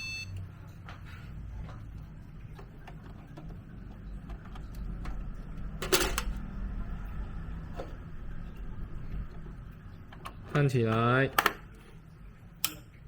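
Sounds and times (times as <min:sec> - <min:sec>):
low steady hum: 0:00.0 - 0:13.0
computer parts clicking and knocking: 0:05.8 - 0:06.4, 0:10.1 - 0:11.7.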